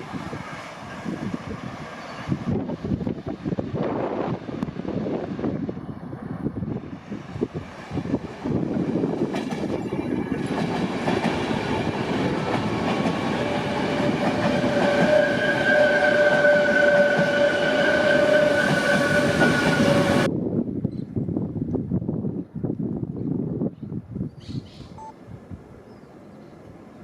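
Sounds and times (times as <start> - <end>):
train wheels rumbling on rail: 0.0 - 20.4.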